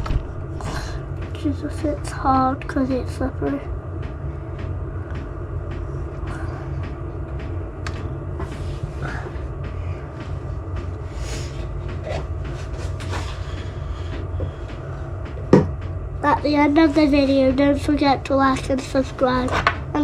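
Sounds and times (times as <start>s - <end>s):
low rumble and hum: 0.0s - 20.0s.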